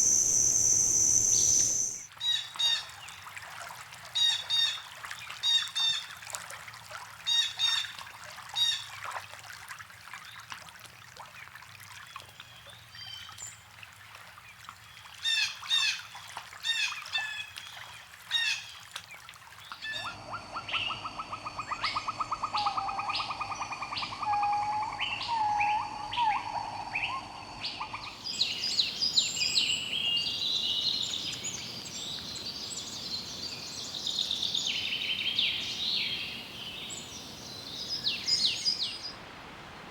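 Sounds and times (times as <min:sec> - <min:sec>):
bird trill with whistled notes: 0:00.0 - 0:02.1, 0:19.8 - 0:39.1
birds chirping: 0:00.0 - 0:02.1, 0:19.8 - 0:39.2.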